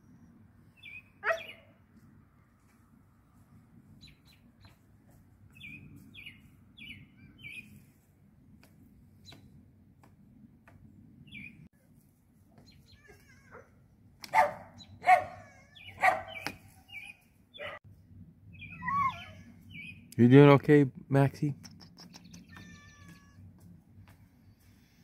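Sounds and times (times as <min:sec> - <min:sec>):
small birds chirping: 0:00.0 - 0:01.8, 0:04.0 - 0:04.9, 0:05.5 - 0:08.0, 0:09.2 - 0:09.6, 0:11.2 - 0:11.7, 0:12.5 - 0:13.4, 0:14.6 - 0:17.8, 0:18.5 - 0:20.2, 0:21.5 - 0:25.0
dog barking: 0:01.2 - 0:01.6, 0:14.3 - 0:16.4, 0:17.6 - 0:17.8.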